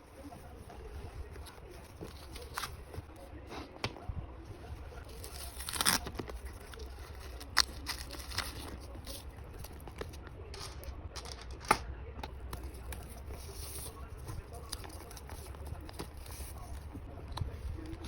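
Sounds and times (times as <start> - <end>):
tearing rustle: 0.6 - 3.1, 5.0 - 11.4
plastic packaging rustling: 4.9 - 11.9.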